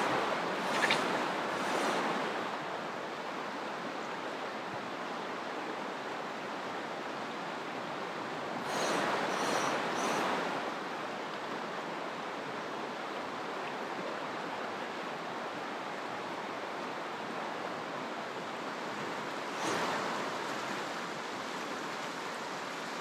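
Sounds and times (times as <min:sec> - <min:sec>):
river rapids rushing: 0:00.0 - 0:03.6, 0:08.6 - 0:11.1, 0:17.8 - 0:23.0.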